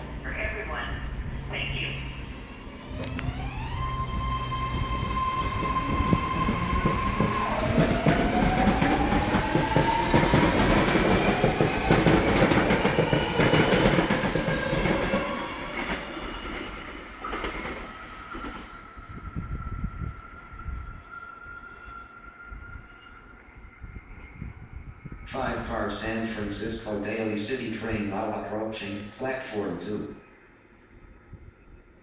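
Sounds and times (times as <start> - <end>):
electric train propulsion whine: 0.0 - 28.7.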